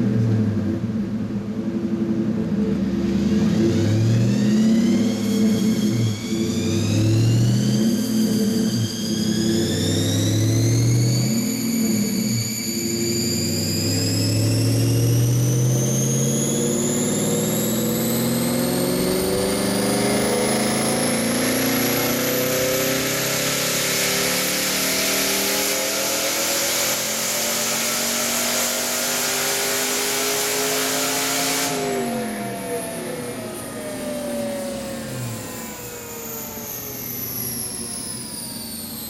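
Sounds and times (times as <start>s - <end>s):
car engine at full throttle: 0.0s - 39.0s
high turbo whine: 0.0s - 39.0s.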